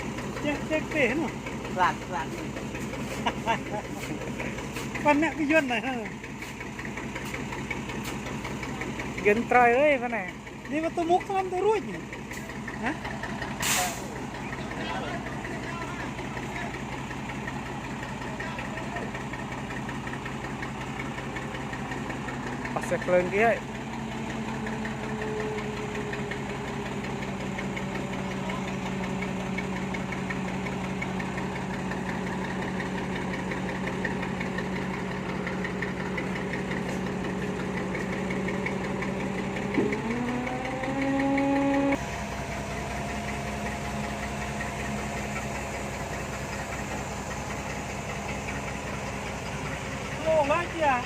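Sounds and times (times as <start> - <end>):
vehicle engine idling and revving: 0.0 - 51.0.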